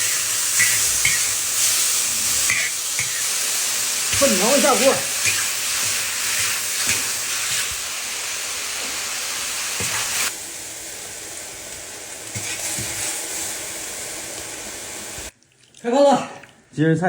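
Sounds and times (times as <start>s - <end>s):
food sizzling in a wok: 0.0s - 15.4s.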